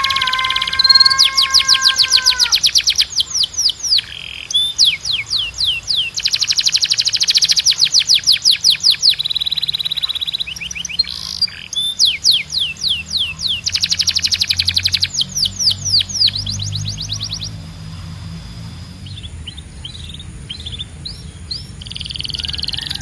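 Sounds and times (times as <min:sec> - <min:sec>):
canary singing trills: 0:00.0 - 0:23.0.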